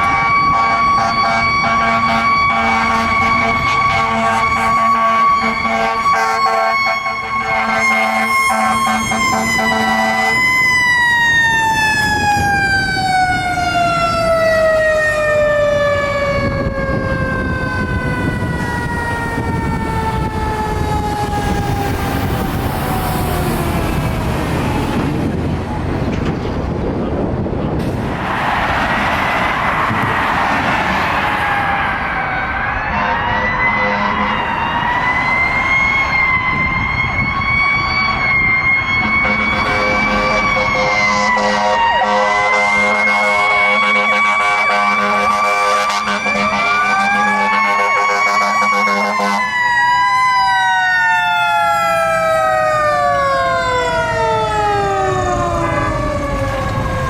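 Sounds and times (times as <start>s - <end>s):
low air horn: 0.0s - 10.6s, 32.8s - 34.7s, 39.0s - 49.6s.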